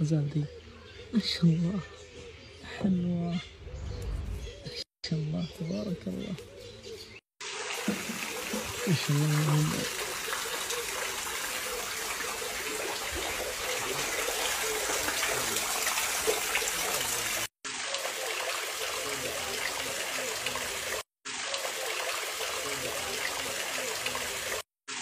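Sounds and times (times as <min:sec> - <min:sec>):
running water: 0:07.4 - 0:25.0.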